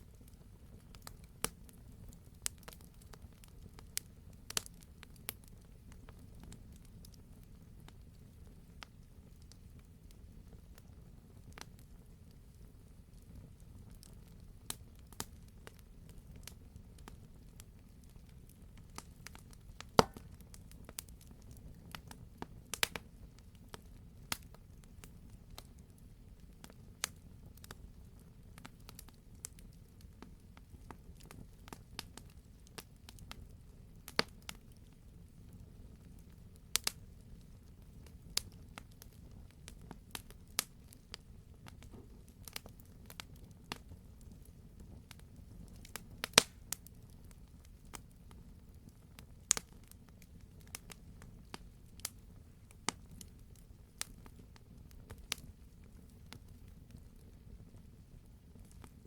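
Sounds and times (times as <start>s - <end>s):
wood fire crackling: 0.0s - 59.0s
sharp pops of fire: 18.8s - 23.1s, 36.7s - 37.4s, 44.8s - 47.0s, 49.2s - 52.2s.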